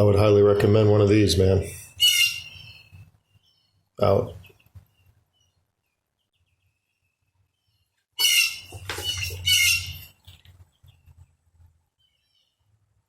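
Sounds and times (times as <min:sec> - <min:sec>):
mockingbird squawking: 0:01.9 - 0:03.0, 0:08.2 - 0:10.2.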